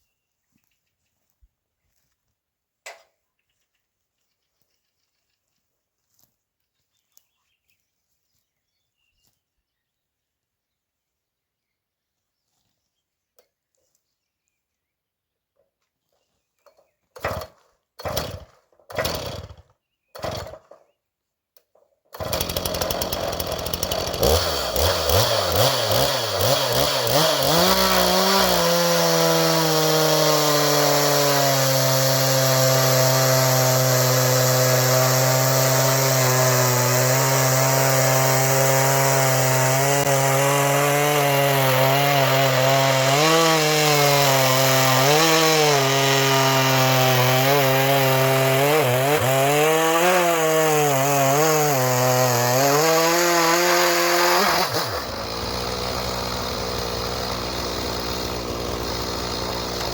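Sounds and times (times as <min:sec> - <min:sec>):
chainsaw sawing through log: 0:17.2 - 0:20.8, 0:22.1 - 0:59.9.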